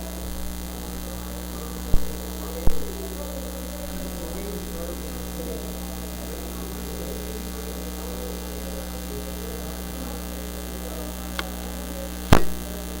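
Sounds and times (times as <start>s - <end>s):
electrical mains hum: 0.0s - 13.0s
faint low murmur: 0.0s - 13.0s
sharp clicks: 12.3s - 12.6s.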